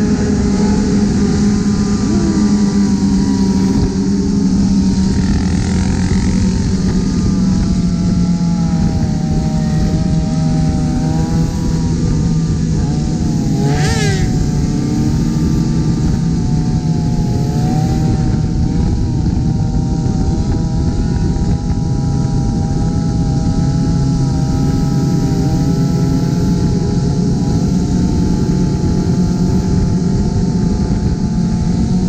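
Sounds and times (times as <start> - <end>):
high-pitched rising sound: 0.0 - 18.7
motorcycle engines running: 0.0 - 32.0
road noise: 0.0 - 32.0
wind rush: 0.0 - 32.0.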